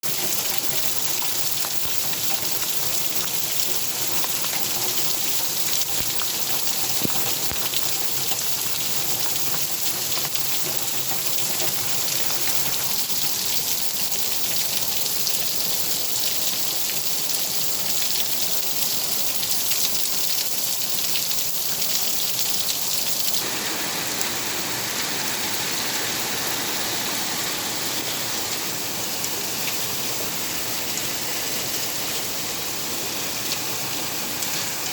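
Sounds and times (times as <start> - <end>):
raindrop impacts: 0.0 - 14.8, 22.2 - 32.6
steady rain falling: 0.0 - 34.9.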